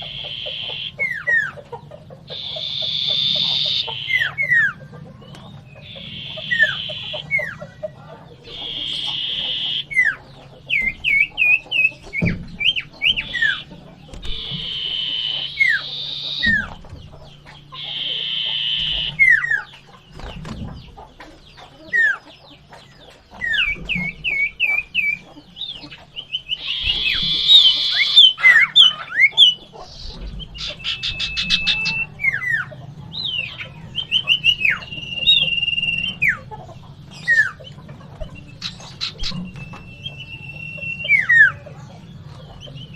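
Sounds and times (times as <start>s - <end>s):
bird whistles: 0.0s - 1.6s, 2.3s - 4.8s, 5.7s - 7.6s, 8.4s - 16.8s, 17.8s - 19.7s, 23.4s - 25.3s, 26.3s - 36.4s, 38.3s - 41.7s
bird rasping chatters: 0.0s - 42.9s
bird rattling trills: 5.6s - 7.6s, 8.4s - 21.1s, 23.4s - 32.7s.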